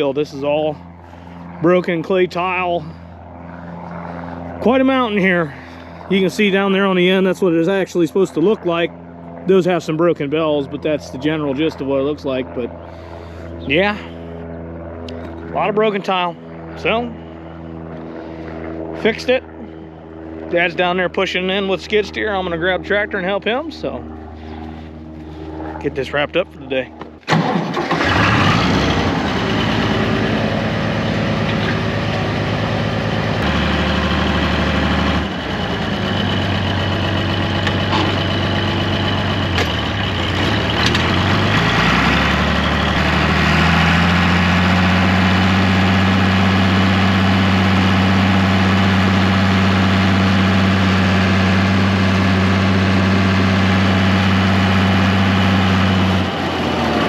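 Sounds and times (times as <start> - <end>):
tractor engine running: 20.1 - 57.0.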